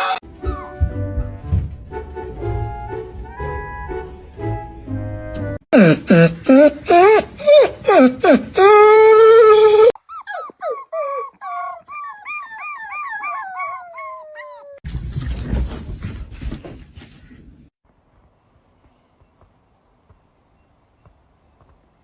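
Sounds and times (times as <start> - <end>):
dog whining: 7.0 - 14.8
dog howling: 8.7 - 14.8.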